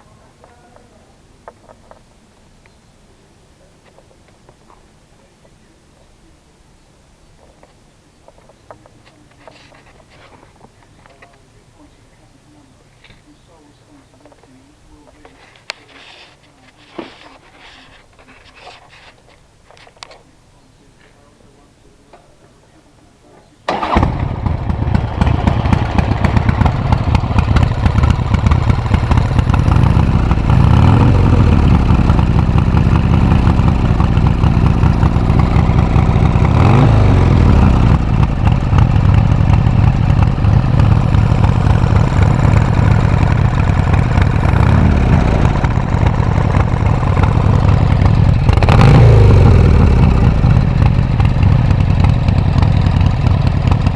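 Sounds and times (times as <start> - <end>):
motorcycle engine revving: 23.7 - 53.9.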